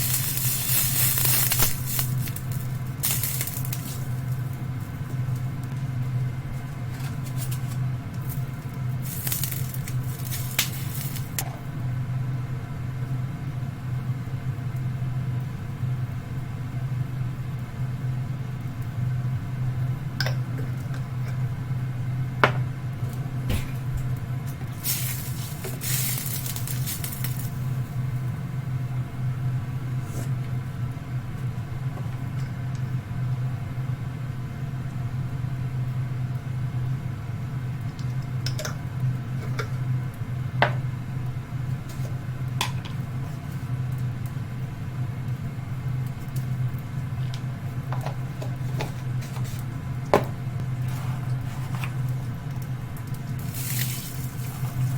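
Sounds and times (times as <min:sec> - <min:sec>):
bursts of hiss: 0:00.0 - 0:04.1, 0:24.8 - 0:27.6
steady low hum: 0:00.0 - 0:54.9.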